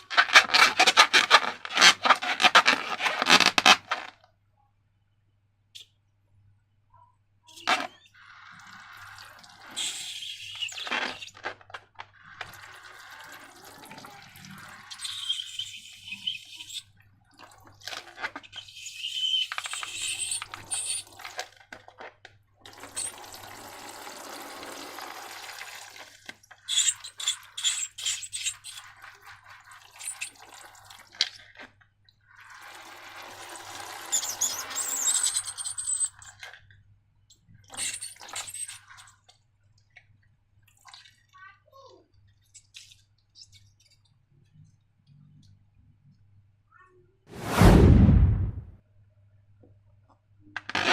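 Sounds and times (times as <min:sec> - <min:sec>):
liquid slime pouring: 0:07.7 - 0:15.6.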